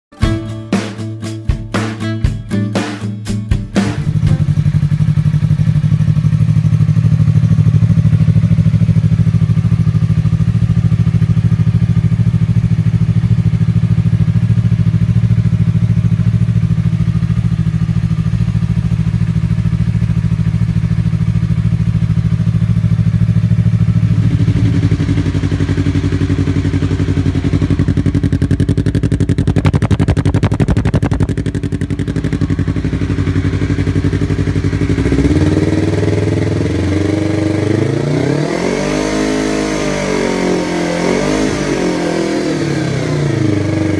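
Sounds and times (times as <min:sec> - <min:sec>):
motorcycle engine idling: 0:04.0 - 0:38.0.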